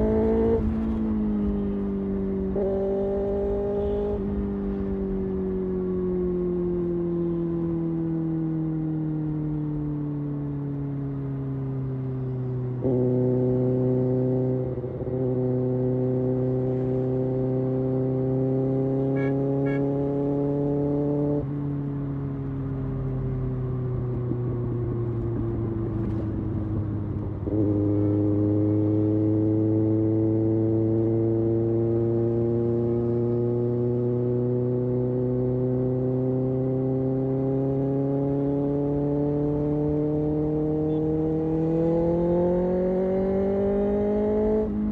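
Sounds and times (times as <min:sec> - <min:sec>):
motorcycle engine revving: 0:00.0 - 0:09.8, 0:11.4 - 0:44.9.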